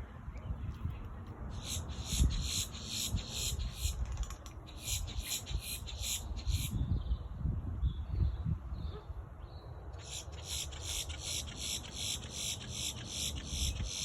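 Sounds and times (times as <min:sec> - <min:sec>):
rhythmic high-pitched animal calls: 0:04.7 - 0:06.7, 0:10.0 - 0:14.0.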